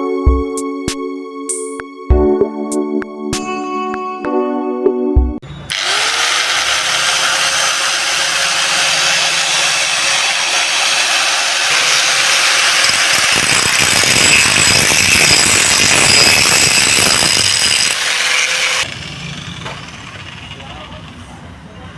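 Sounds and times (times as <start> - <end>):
angle grinder whining: 5.6 - 21.7.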